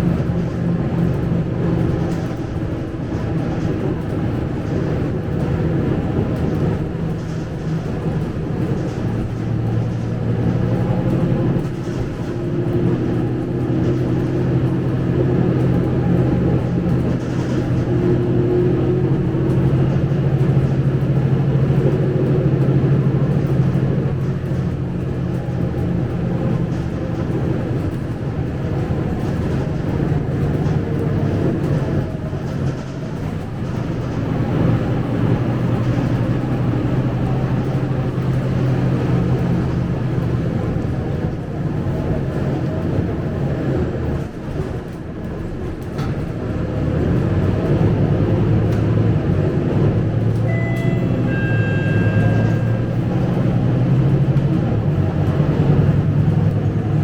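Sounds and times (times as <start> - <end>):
bus diesel engine droning: 0.0 - 57.0.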